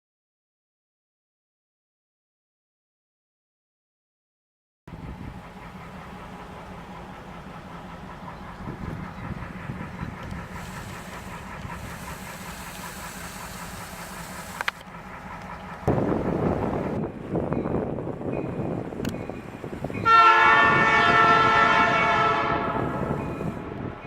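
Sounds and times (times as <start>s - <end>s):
diesel locomotive engine rumble: 4.9s - 24.0s
high hiss: 10.5s - 14.8s.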